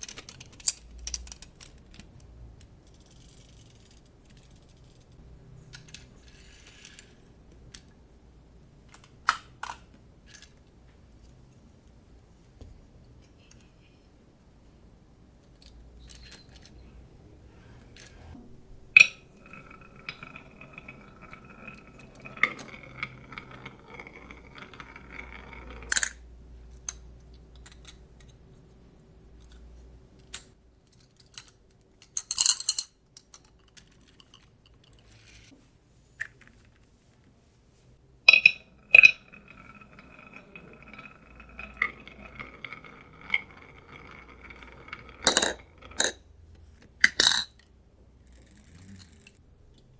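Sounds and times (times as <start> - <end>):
marbles rolling on wooden track: 5.8 - 7.2, 18.8 - 26.3, 38.3 - 46.2
marble clacks and clinks: 18.8 - 28.4, 38.3 - 46.2.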